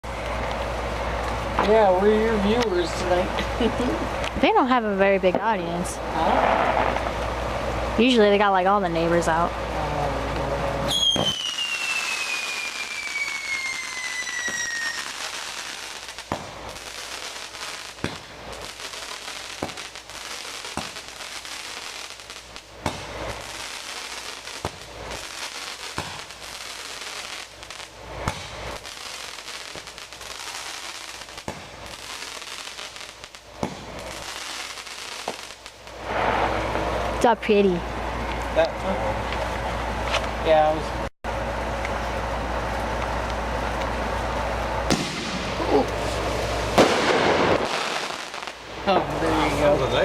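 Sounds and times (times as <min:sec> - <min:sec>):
steady hiss: 0:06.0 - 0:37.3, 0:40.1 - 0:50.0
firework bangs and pops: 0:06.2 - 0:07.4, 0:10.3 - 0:37.3, 0:44.8 - 0:50.0
firework whistle falling in pitch: 0:10.9 - 0:15.2.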